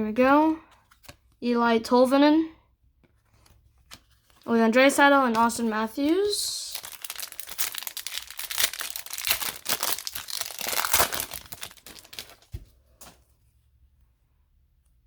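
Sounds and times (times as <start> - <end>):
foil wrapper crinkling and tearing: 6.0 - 12.7.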